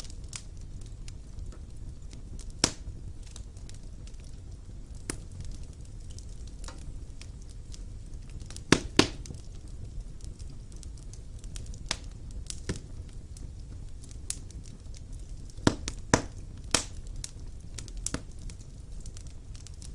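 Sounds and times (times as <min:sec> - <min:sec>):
wood fire crackling and popping: 0:00.0 - 0:19.9.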